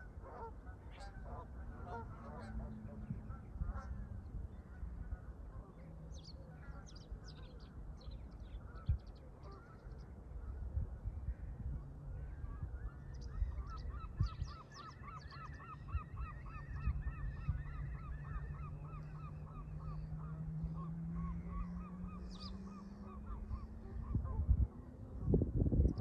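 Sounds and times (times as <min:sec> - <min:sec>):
geese honking: 0:00.0 - 0:04.0
low rising drone: 0:13.6 - 0:26.0.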